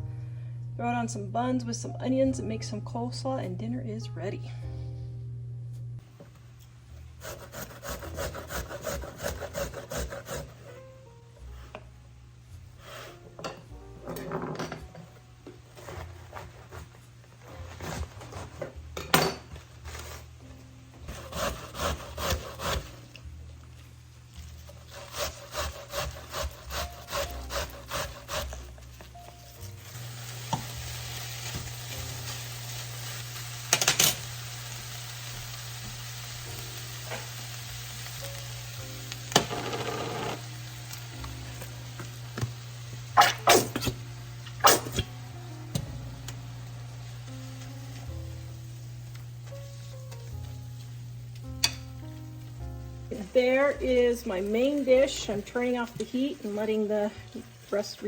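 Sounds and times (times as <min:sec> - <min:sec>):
food sizzling: 0:15.2 - 0:58.0.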